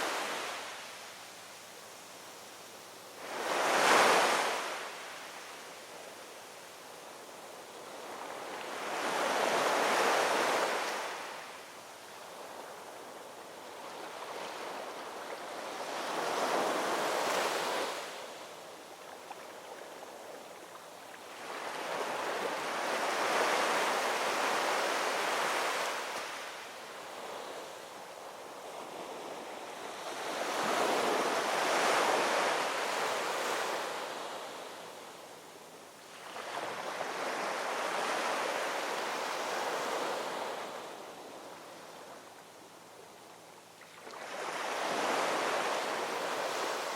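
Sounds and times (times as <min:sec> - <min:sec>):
ocean waves washing ashore: 0:00.0 - 0:43.0, 0:43.6 - 0:46.9.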